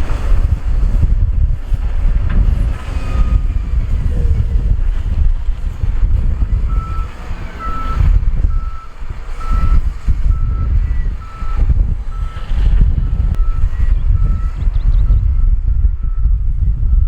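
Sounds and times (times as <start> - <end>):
heavy diesel equipment rumble: 0.0 - 17.0
reversing alarm beeping: 6.7 - 17.0.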